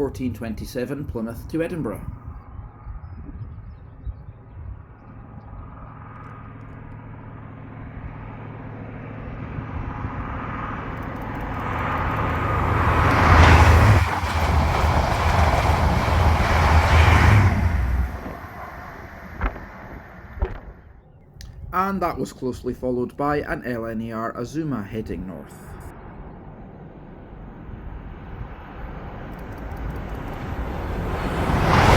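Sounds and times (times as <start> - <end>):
diesel train engine drone: 0.0 - 3.0, 4.5 - 31.9
train wheels rumbling: 10.2 - 20.9, 28.1 - 31.9.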